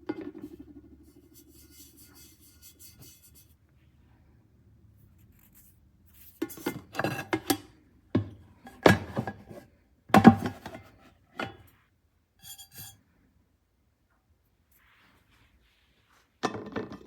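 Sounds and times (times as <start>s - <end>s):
pots and pans clattering: 6.4s - 9.6s, 10.2s - 11.7s.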